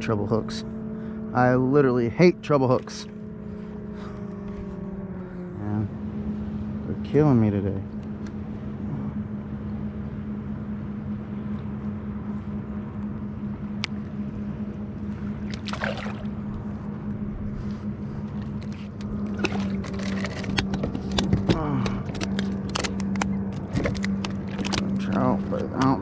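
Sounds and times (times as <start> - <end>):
steady low hum: 0.0 - 26.0
water noise: 15.1 - 16.9, 18.3 - 20.7.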